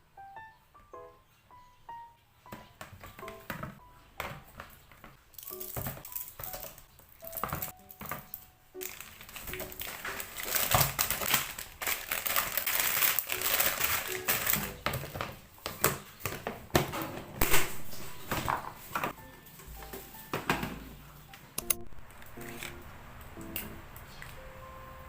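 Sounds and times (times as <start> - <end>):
soft background music: 0.0 - 25.0
packaging crinkling: 5.3 - 15.4
clicks and taps: 21.6 - 22.8.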